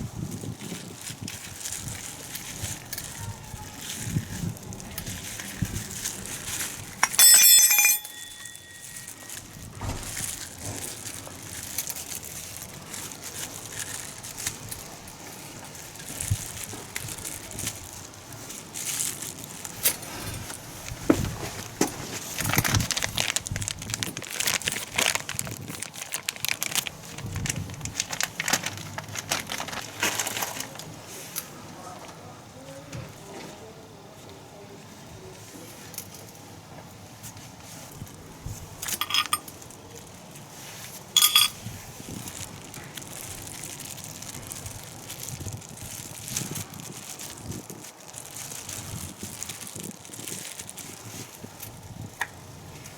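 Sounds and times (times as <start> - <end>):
metallic clank: 7.0 - 9.1, 41.2 - 41.6.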